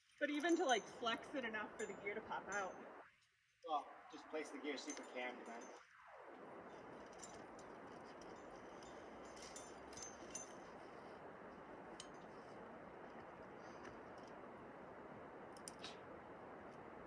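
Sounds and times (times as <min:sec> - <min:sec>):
steady low hiss: 0:00.0 - 0:17.0
metallic clicks of climbing gear: 0:04.8 - 0:05.8, 0:06.9 - 0:11.1, 0:15.5 - 0:16.0.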